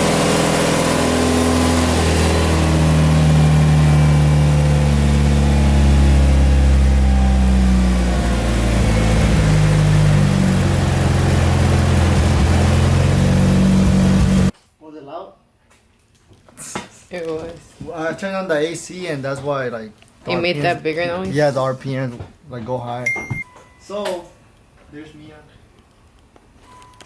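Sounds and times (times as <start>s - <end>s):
car engine idling: 0.0s - 14.5s.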